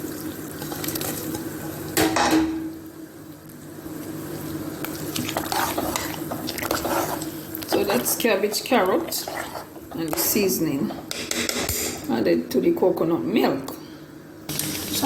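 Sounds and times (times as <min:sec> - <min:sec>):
liquid sloshing: 0:04.8 - 0:10.2
utensils knocking against pot: 0:11.0 - 0:12.1.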